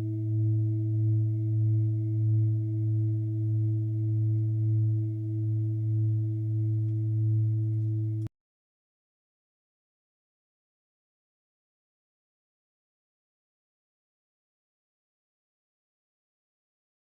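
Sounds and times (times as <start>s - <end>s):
singing bowl ringing: 0.0s - 8.3s.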